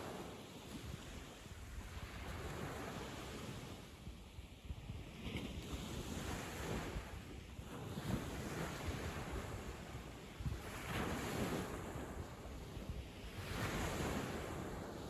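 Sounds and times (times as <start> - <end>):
sea waves breaking on beach: 0.0 - 15.0
wind noise on microphone: 0.0 - 15.0.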